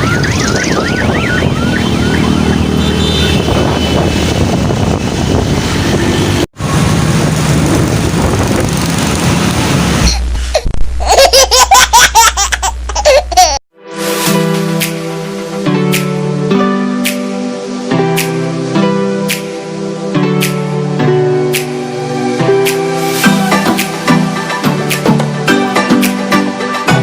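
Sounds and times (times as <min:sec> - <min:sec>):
traffic noise: 0:00.0 - 0:10.6
child laughing: 0:10.0 - 0:13.6.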